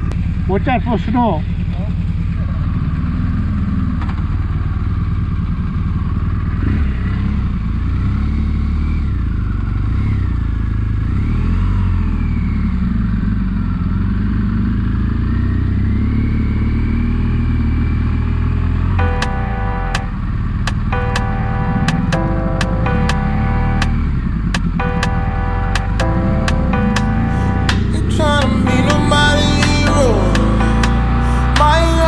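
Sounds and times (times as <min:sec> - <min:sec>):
motorcycle engine revving: 0:00.0 - 0:32.0
music: 0:21.0 - 0:24.0, 0:24.8 - 0:32.0.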